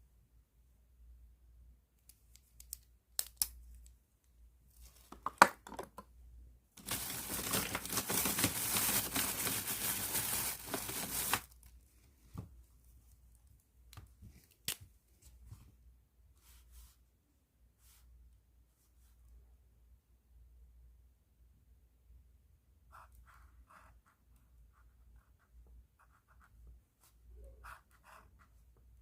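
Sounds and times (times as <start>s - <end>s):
plastic bag crinkling: 6.8s - 11.6s.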